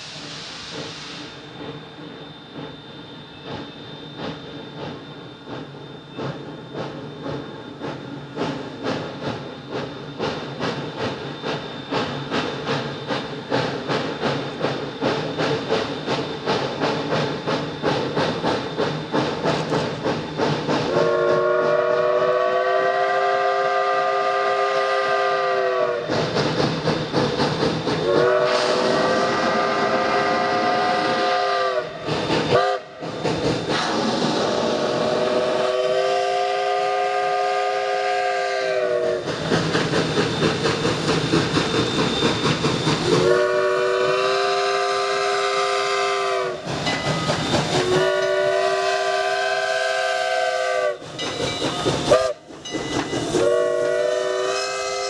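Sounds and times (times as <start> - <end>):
steam locomotive exhaust chuffing: 0.0 - 55.0.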